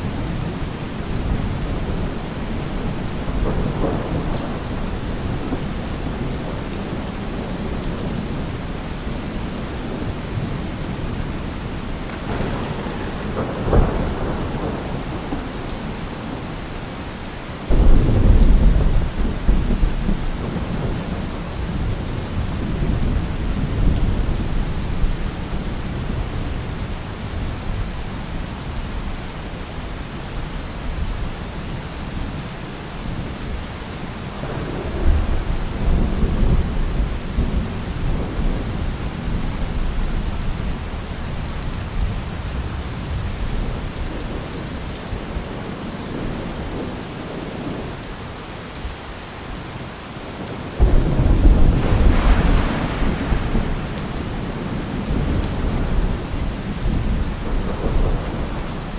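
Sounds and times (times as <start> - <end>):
rolling thunder: 0.0 - 8.6, 12.1 - 16.6, 17.7 - 26.7, 50.8 - 58.9
heavy rain: 0.0 - 58.9
loud thunderclap: 12.2 - 15.6, 17.7 - 21.1, 50.8 - 58.9.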